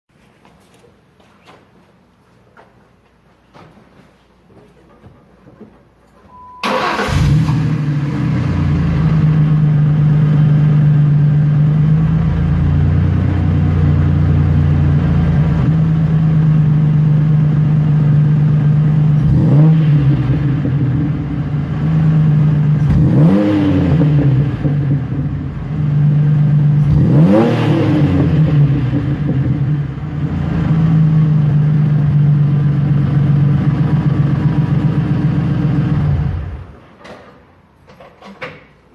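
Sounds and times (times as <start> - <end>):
car exhaust idling and revving: 7.2 - 36.8.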